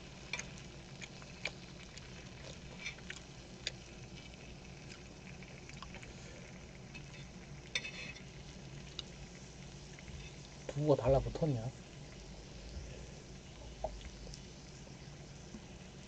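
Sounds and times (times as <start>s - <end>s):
faint frying: 0.0s - 16.0s
steady low hum: 0.0s - 16.0s
utensils clicking on a pan: 0.3s - 0.6s, 6.9s - 8.3s.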